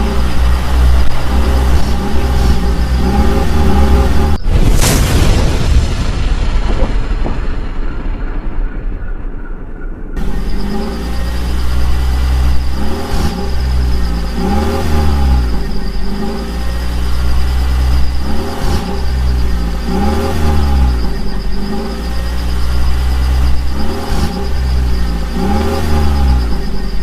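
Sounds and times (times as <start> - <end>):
heavy vehicle engine revving: 0.0 - 4.4, 10.2 - 27.0
low rumble: 0.0 - 27.0.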